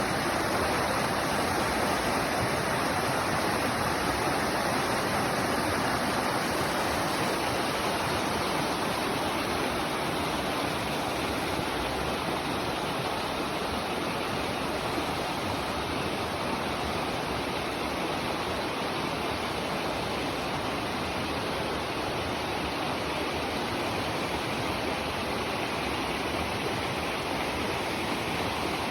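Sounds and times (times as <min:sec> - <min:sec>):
water rushing: 0:00.0 - 0:28.9.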